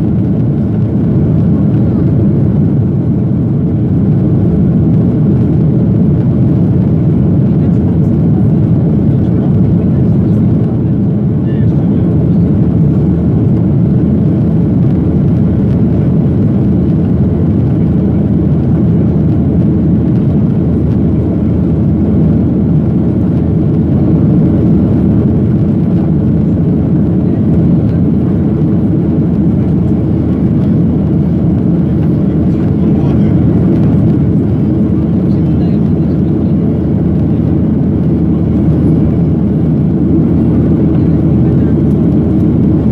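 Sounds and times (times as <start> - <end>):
jet engine rumble in cabin: 0.0 - 42.9.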